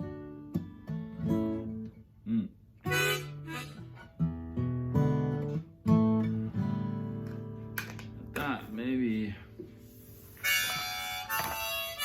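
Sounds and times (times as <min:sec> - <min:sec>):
acoustic guitar strummed chords: 0:00.0 - 0:12.0
short harmonica notes: 0:02.8 - 0:04.2, 0:09.9 - 0:12.0.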